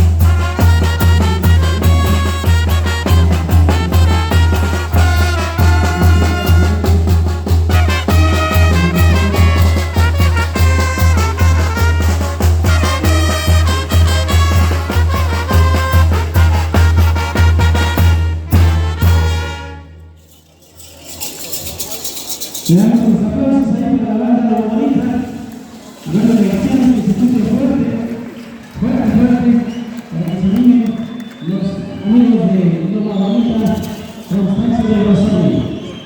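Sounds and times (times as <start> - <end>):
brass band playing: 0.0 - 20.4.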